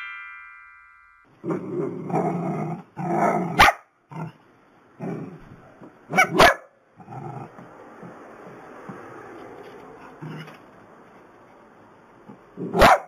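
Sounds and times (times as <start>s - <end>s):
dog growling: 1.5s - 4.4s, 5.0s - 5.5s, 7.0s - 7.6s
dog barking: 3.2s - 3.9s, 6.1s - 6.8s, 12.7s - 13.0s.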